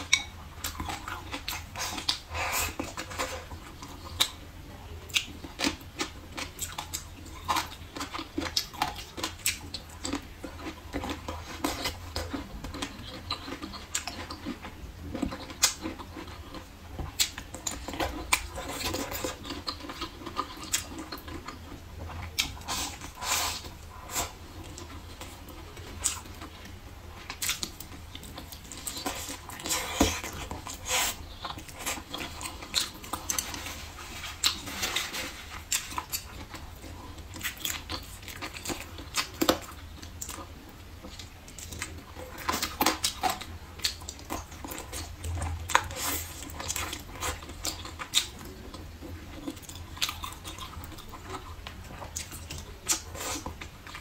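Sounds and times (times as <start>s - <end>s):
chewing and lip-smacking: 0.0s - 54.0s.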